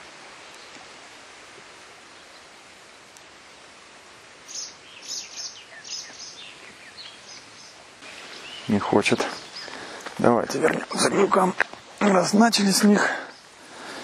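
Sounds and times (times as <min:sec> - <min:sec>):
soft outdoor hiss: 0:00.0 - 0:14.0
small bird chirping: 0:04.5 - 0:09.8.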